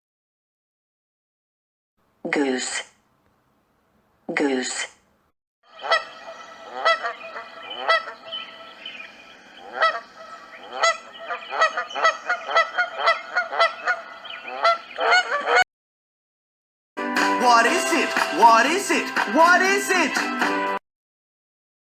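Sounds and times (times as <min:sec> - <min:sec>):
goose honking: 0:05.7 - 0:15.6.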